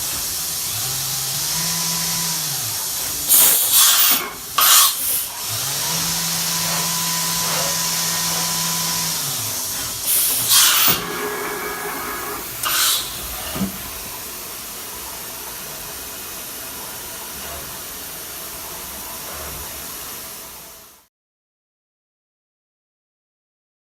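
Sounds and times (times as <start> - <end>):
machining center hissing: 2.7 - 20.9
short loud hisses: 10.1 - 13.3.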